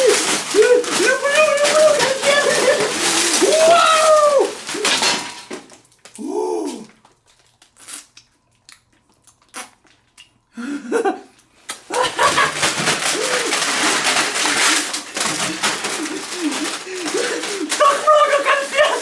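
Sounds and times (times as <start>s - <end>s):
child exclaiming and giggling: 1.0s - 3.0s.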